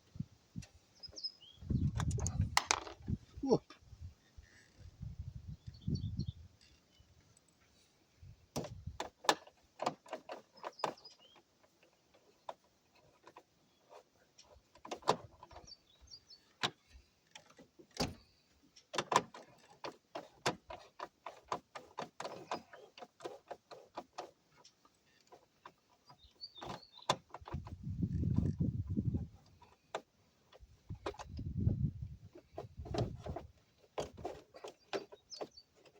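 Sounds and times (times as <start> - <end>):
clicks of plastic parts handled: 1.9 - 3.2.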